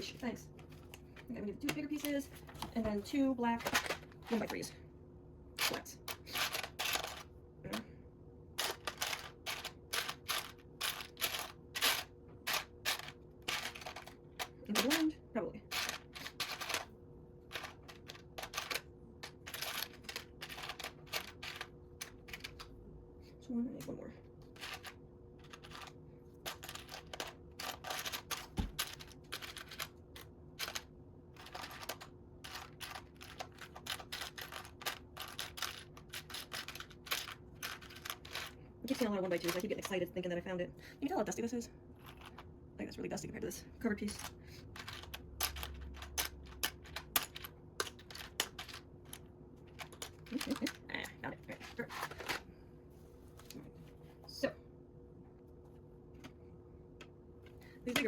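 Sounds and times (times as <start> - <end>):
lego bricks clicking and clattering: 5.6 - 7.3, 8.6 - 15.1, 15.7 - 16.9, 17.5 - 22.7, 24.6 - 40.1, 44.1 - 50.9
plastic pieces clattering: 44.8 - 50.8.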